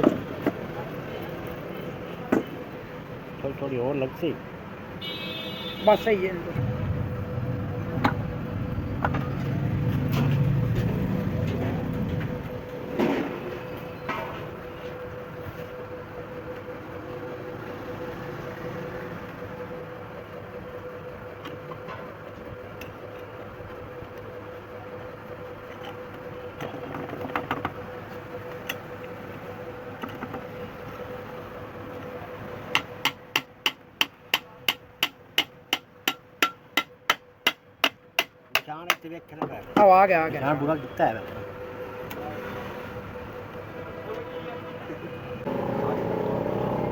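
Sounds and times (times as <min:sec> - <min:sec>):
steady background hum: 0:00.0 - 0:46.0
rapid hammer strikes: 0:32.7 - 0:39.1.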